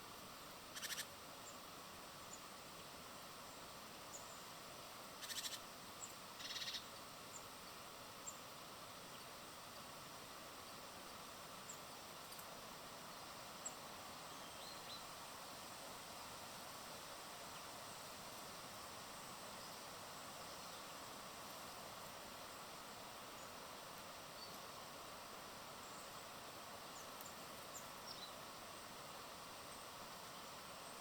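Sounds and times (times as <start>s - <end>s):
steady hiss: 0.0s - 31.0s
short buzzy bird calls: 0.7s - 1.1s
small birds chirping: 0.7s - 1.6s, 5.2s - 7.5s, 24.3s - 24.8s.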